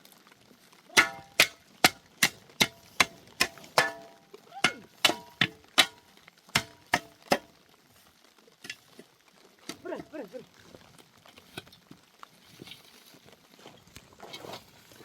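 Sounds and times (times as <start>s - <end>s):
sharp metallic knocks: 1.0s - 6.0s, 6.6s - 7.4s.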